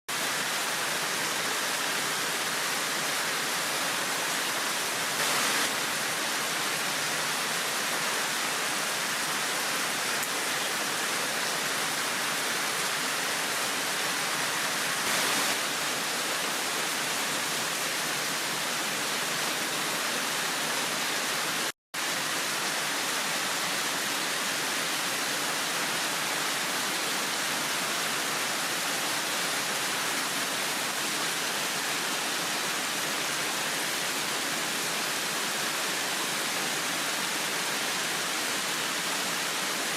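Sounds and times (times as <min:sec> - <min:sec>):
heavy rain hissing: 0:00.1 - 0:39.9.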